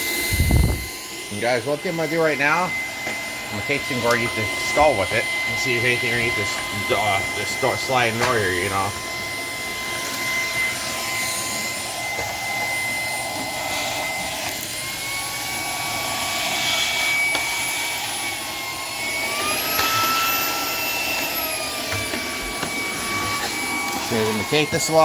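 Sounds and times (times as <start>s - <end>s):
vacuum cleaner motor whine: 0.0s - 25.0s
rushing air: 0.1s - 1.0s.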